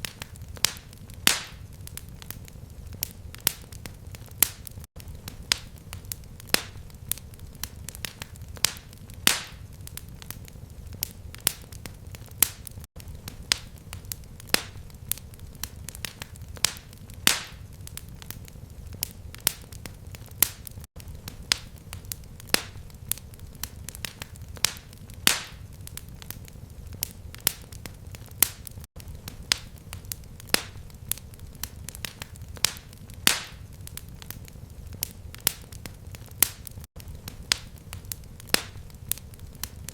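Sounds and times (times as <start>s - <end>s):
fire crackling and popping: 0.0s - 39.9s
low fire rumble: 0.0s - 39.9s.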